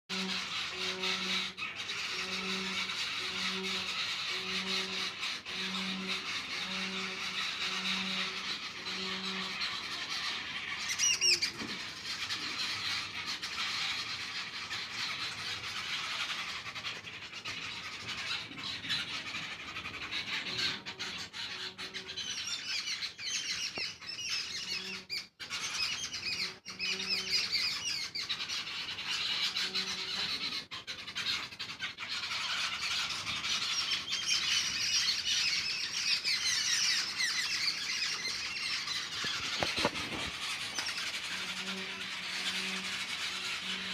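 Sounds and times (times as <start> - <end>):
birds chirping and squawking: 0.1 - 43.9.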